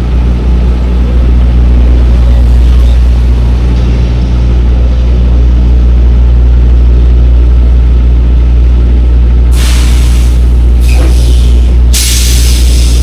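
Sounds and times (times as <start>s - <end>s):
truck diesel engine drone: 0.0s - 13.0s
air hiss: 9.5s - 13.0s.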